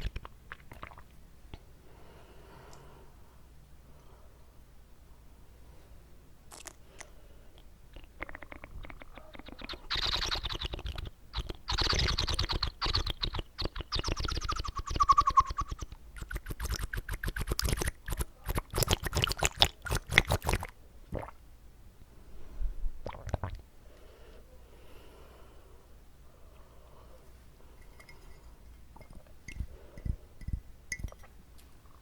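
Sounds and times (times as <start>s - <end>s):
wet mouth smacking clicks: 0.0s - 1.6s, 6.5s - 7.1s, 7.9s - 21.3s.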